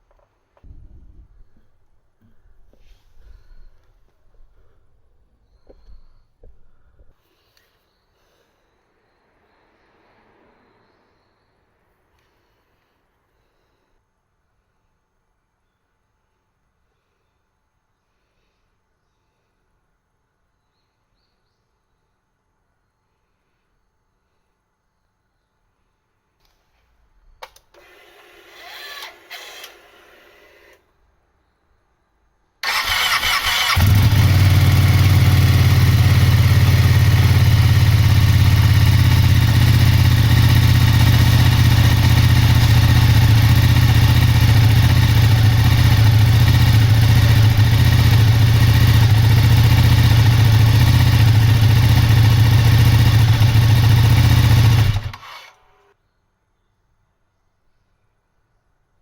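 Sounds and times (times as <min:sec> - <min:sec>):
motorcycle electric starter cranking: 0:27.4 - 0:30.8, 0:32.6 - 0:55.9
motorcycle engine idling: 0:32.6 - 0:55.2.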